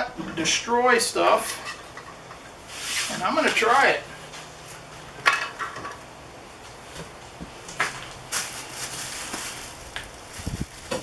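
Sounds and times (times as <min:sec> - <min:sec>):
plastic bag rustling: 0:07.7 - 0:11.0.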